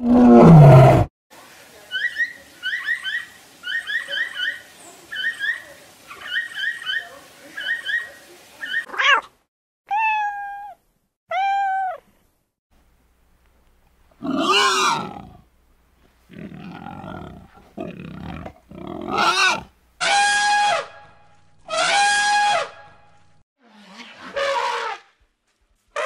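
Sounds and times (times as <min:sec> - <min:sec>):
cat meowing: 0:09.9 - 0:12.0
elephant trumpeting: 0:14.2 - 0:15.4, 0:16.4 - 0:21.0
pigs grunting and squealing: 0:14.2 - 0:15.4, 0:16.3 - 0:19.7.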